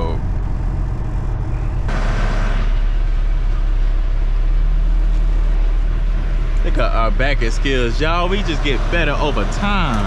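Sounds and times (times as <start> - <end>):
truck diesel engine running: 0.0 - 10.0.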